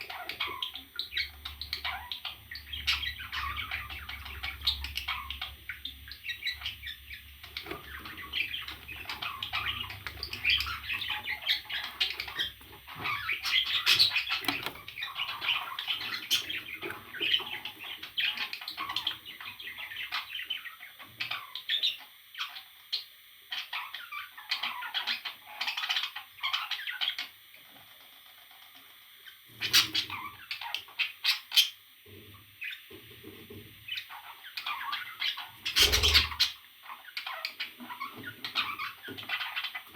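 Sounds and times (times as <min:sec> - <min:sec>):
parrot calls: 0:33.9 - 0:39.9.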